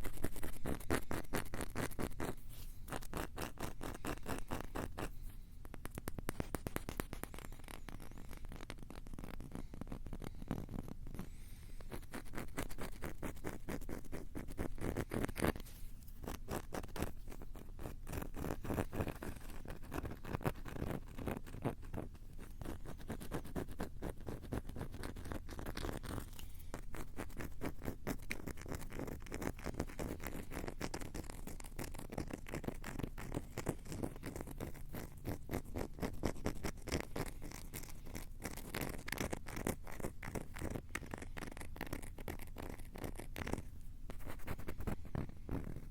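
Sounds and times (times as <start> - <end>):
fingers scratching on recorder: 0.0 - 45.9.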